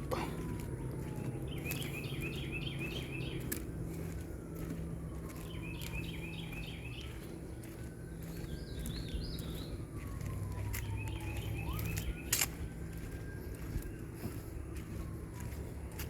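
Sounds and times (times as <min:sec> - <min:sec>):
bird chirping: 0:01.0 - 0:03.6, 0:05.2 - 0:10.0, 0:10.7 - 0:14.9.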